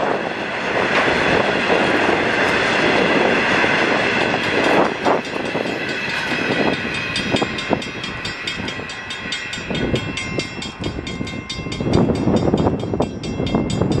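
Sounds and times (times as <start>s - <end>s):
freight train wheels clattering on rails: 0.0s - 14.0s
crossing signal bell ringing: 4.4s - 14.0s.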